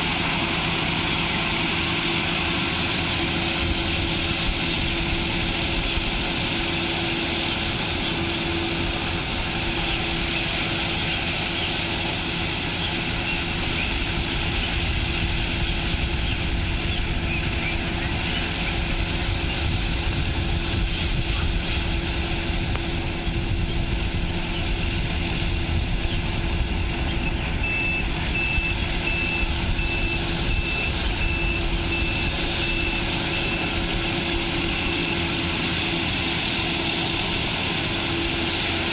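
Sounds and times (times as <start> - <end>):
harvester engine humming: 0.0 - 38.9.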